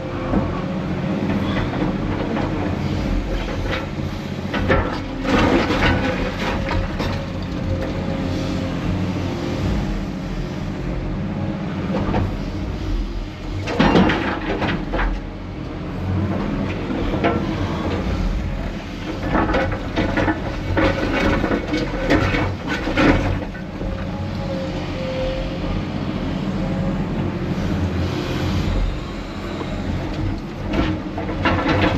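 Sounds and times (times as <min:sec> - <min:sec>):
heavy diesel machinery running: 0:00.0 - 0:31.9
concrete chunks clattering into dumper: 0:01.3 - 0:08.0, 0:13.6 - 0:15.3, 0:16.6 - 0:24.0, 0:30.2 - 0:31.9.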